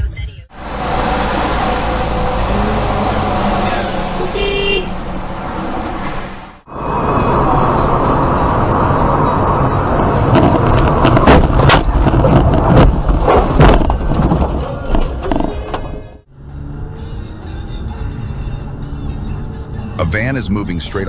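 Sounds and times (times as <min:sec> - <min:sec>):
car road and engine noise: 0:00.0 - 0:21.0
car horn toot: 0:03.5 - 0:05.0.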